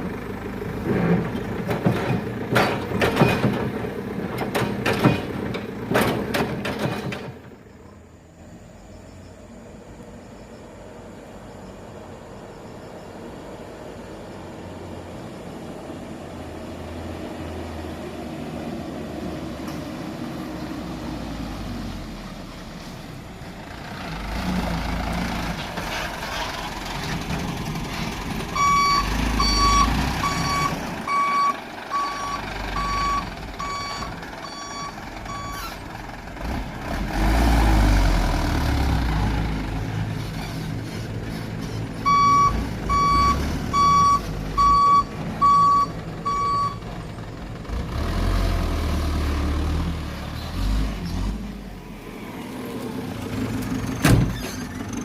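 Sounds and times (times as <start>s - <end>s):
dump truck engine running: 0.0s - 55.0s
reversing beeper: 28.6s - 35.7s, 42.0s - 46.8s.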